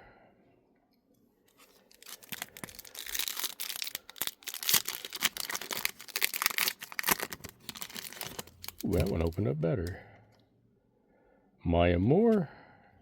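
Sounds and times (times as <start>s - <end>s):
foil pack tearing and crinkling: 1.5s - 9.4s.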